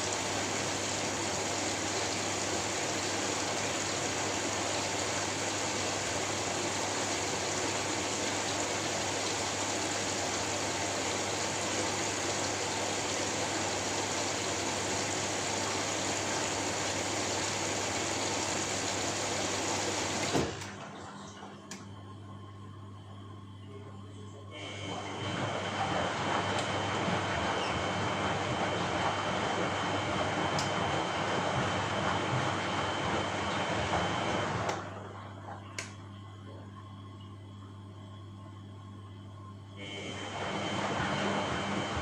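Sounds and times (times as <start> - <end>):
click: 21.7 - 21.9, 35.8 - 36.0.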